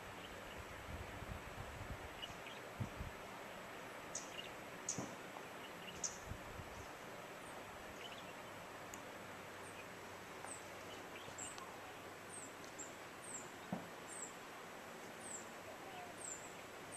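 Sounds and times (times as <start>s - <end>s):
faint waterfall rushing: 0.0s - 16.9s
bird chirping: 4.1s - 6.9s, 8.0s - 8.6s, 10.5s - 14.4s, 15.2s - 16.6s.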